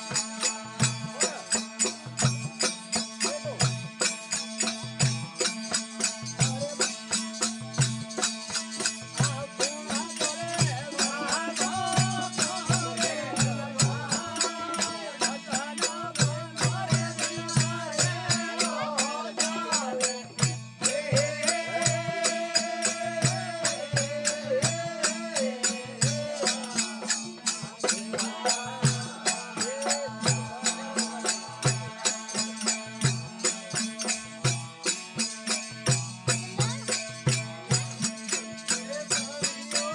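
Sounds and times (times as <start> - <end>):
drum beat: 7.6 - 15.0, 35.8 - 38.6.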